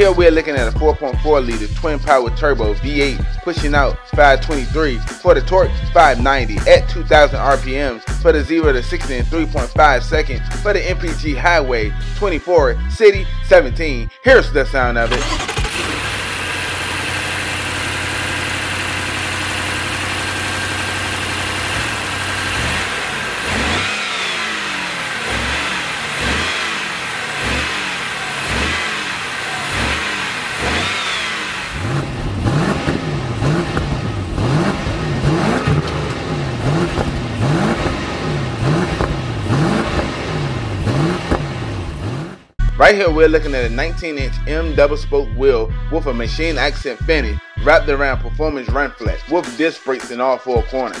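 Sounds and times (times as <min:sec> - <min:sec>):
car engine idling and revving: 0:00.0 - 0:12.0, 0:15.0 - 0:42.6.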